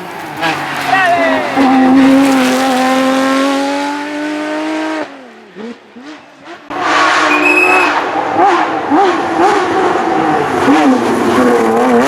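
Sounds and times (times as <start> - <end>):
rally car engine at high revs: 0.0 - 12.0
short high squeal: 7.2 - 8.0.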